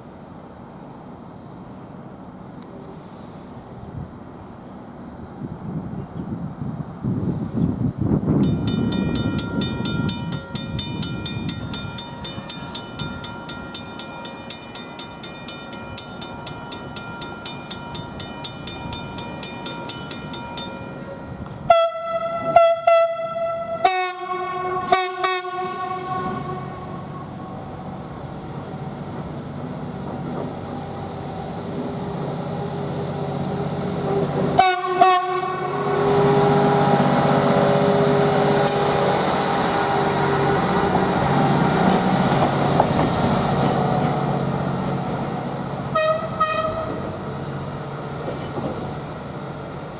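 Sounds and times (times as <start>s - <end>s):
train rumbling: 0.0s - 49.9s
bell ringing: 8.4s - 21.4s
train horn blasts: 21.1s - 27.7s, 34.6s - 39.0s, 45.9s - 47.2s.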